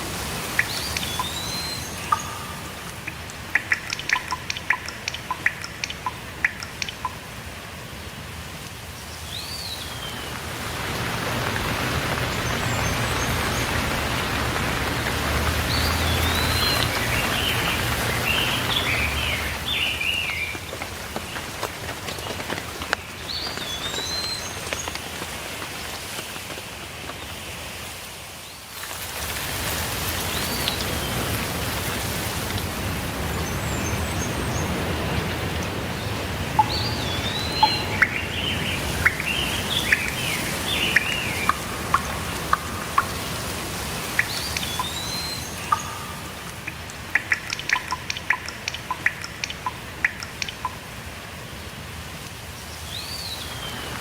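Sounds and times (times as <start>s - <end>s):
birds chirping: 0.0s - 7.4s, 9.1s - 25.1s, 33.1s - 50.9s
steady rainfall: 0.0s - 54.0s.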